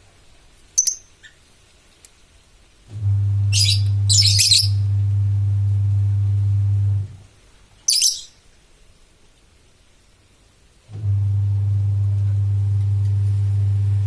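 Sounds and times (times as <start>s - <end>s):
loud steady low hum: 2.9s - 7.2s, 11.0s - 14.0s
bird giving harsh scratchy calls: 3.6s - 4.8s.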